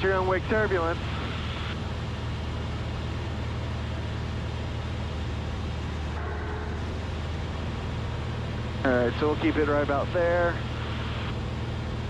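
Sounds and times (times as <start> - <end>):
aircraft engine and propeller droning: 0.0 - 12.0.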